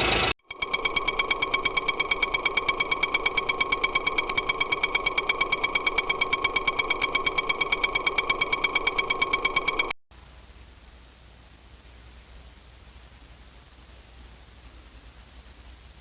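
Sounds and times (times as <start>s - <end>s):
engine mechanical ticking: 0.1s - 10.0s
steady ringing tone: 0.4s - 10.0s.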